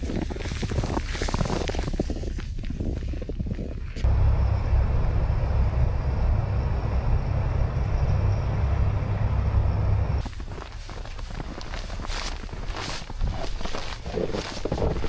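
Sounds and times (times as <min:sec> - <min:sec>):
outdoor noise: 0:03.9 - 0:15.0
loud low rumble: 0:04.0 - 0:10.3.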